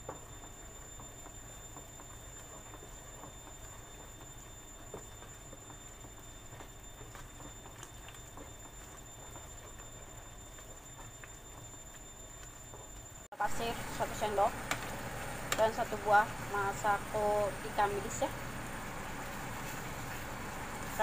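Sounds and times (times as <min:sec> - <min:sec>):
paste sizzling in oil: 0:13.6 - 0:21.0.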